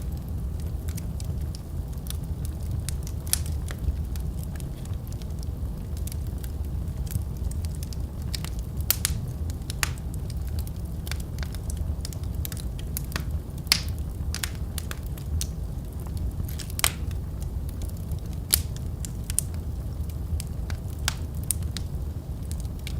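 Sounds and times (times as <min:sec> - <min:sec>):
wood fire crackling: 0:00.0 - 0:22.9.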